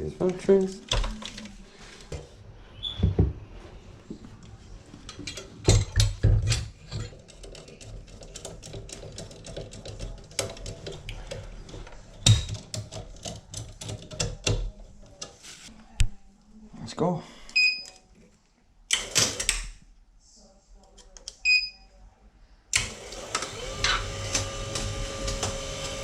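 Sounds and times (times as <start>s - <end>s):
hand tools clicking and rattling: 5.1s - 14.7s.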